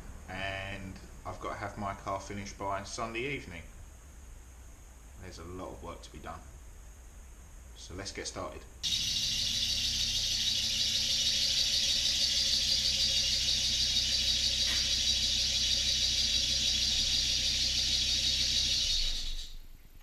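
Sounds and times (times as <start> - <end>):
machine hissing: 8.8 - 19.7
low machine hum: 8.8 - 20.0.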